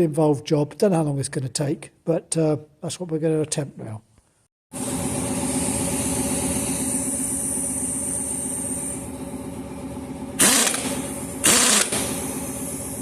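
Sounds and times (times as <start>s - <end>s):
engine running: 4.8s - 13.0s.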